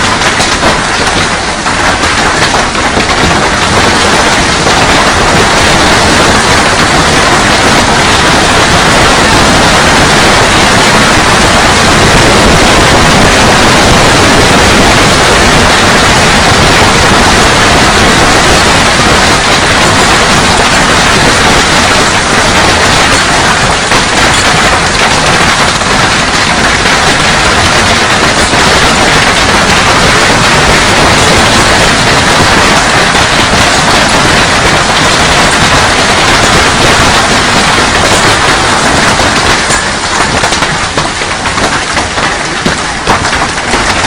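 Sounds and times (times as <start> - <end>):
hailstones pelting down: 0.0 - 44.0.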